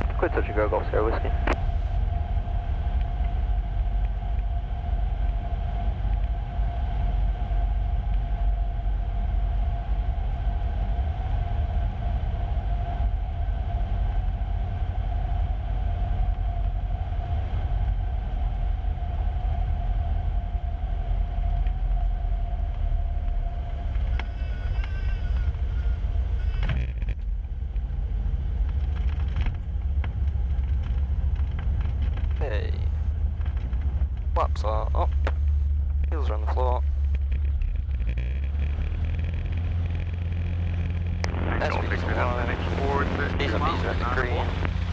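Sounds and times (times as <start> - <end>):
airplane engine drone: 0.0 - 44.9.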